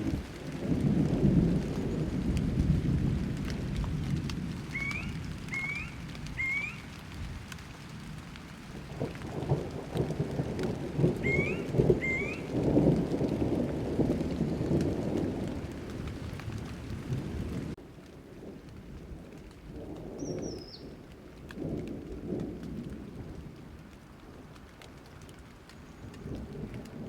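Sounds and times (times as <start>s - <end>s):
rolling thunder: 0.0s - 8.2s, 8.8s - 17.8s
steady rain: 0.0s - 27.0s.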